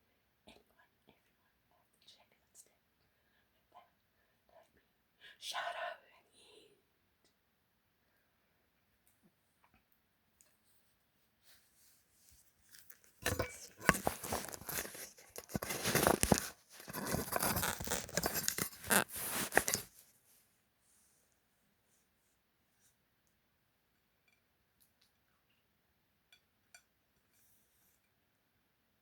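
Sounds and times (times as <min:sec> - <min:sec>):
tacos crunching: 0:12.8 - 0:19.9.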